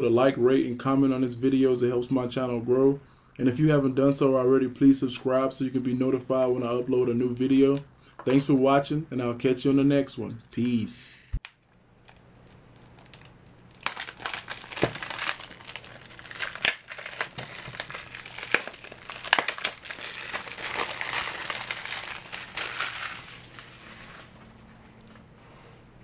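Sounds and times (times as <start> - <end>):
packaging crinkling: 11.4 - 25.1.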